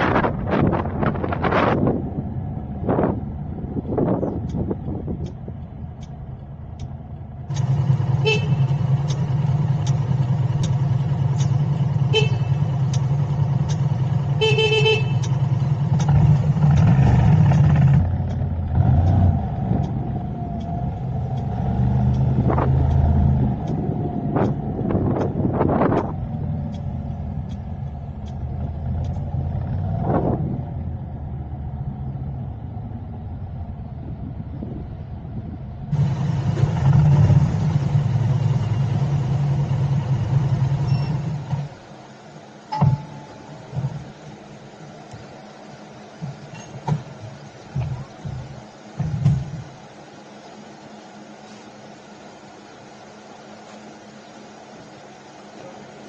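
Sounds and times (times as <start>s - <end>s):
car engine and road noise: 0.0s - 56.0s
vehicle horn toots: 8.2s - 8.8s, 12.0s - 12.7s, 14.3s - 15.4s.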